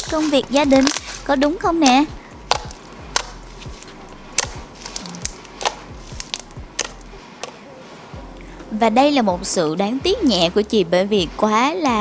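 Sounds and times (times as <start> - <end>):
air pops in slime: 0.0 - 7.6
slime squishing: 0.0 - 12.0.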